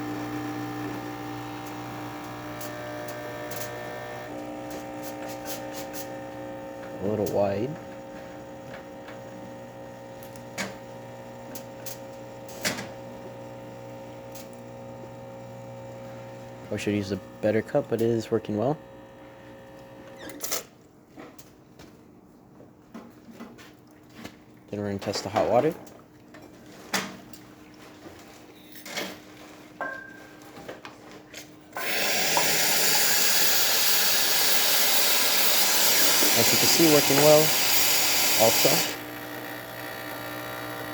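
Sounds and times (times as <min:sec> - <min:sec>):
espresso machine pump humming: 0:00.0 - 0:20.3, 0:31.8 - 0:40.9
hot water hissing from wand: 0:31.8 - 0:39.0.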